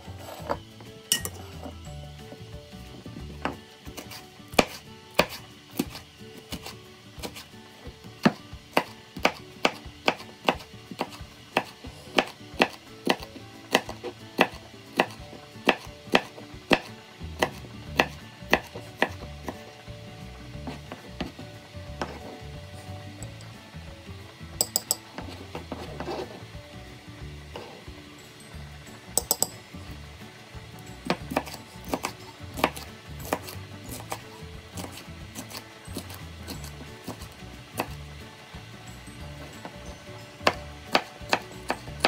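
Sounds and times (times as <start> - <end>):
knife chopping on cutting board: 3.3 - 7.5, 8.2 - 19.6, 20.7 - 22.4, 31.1 - 38.0, 40.4 - 42.0.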